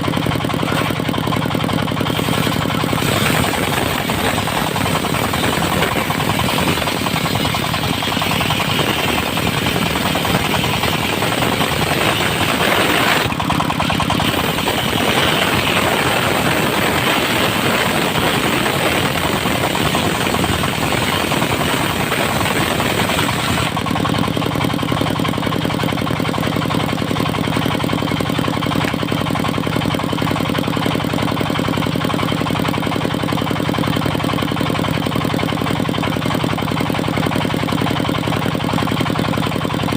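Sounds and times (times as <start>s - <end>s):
saw blade cutting wood: 0.0s - 24.4s
diesel engine running: 0.0s - 39.9s.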